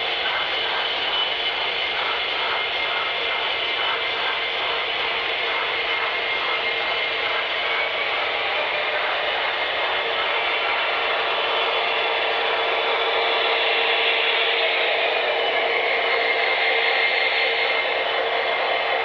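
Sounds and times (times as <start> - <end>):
model train motor whir: 0.0 - 19.0
wheel noise on rails: 0.0 - 19.0.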